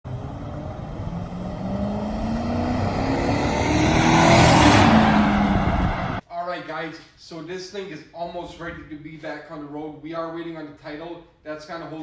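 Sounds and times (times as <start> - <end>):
vehicle engine accelerating: 0.0 - 6.2.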